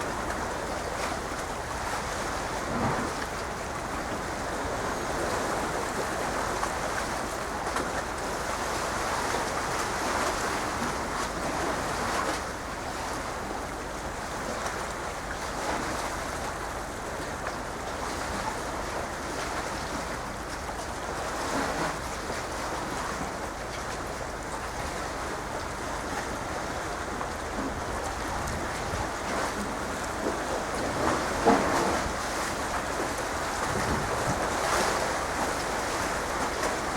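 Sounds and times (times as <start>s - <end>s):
sea waves washing: 0.0s - 36.9s
wind on microphone: 26.8s - 36.9s.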